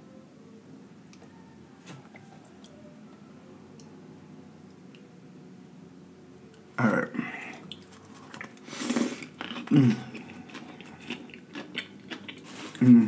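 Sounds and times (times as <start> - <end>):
chewing with wet mouth clicks: 7.6 - 12.9.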